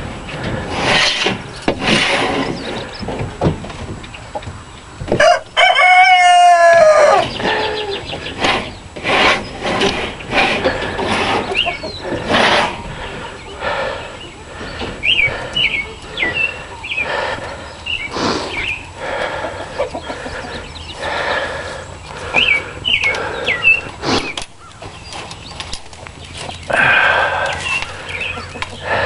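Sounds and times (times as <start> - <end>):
rustling noise: 0.0 - 5.3, 7.2 - 13.4, 21.0 - 29.0
birds chirping: 0.0 - 29.0.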